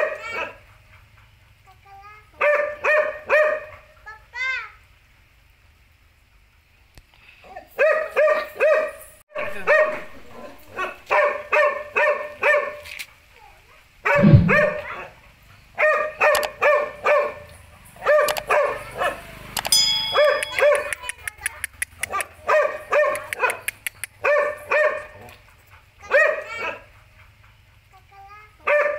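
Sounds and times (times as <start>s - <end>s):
dog barking: 0.0s - 1.0s, 2.4s - 4.0s, 7.8s - 12.9s, 14.0s - 15.2s, 15.8s - 19.3s, 20.2s - 21.0s, 22.0s - 25.4s, 26.0s - 27.4s, 28.6s - 28.9s.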